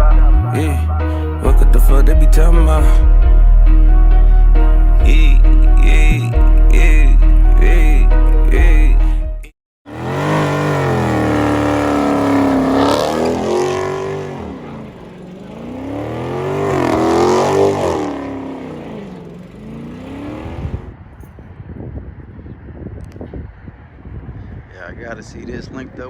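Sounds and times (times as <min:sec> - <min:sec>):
car engine revving: 0:09.9 - 0:21.3
rough outdoor noise: 0:09.9 - 0:26.0.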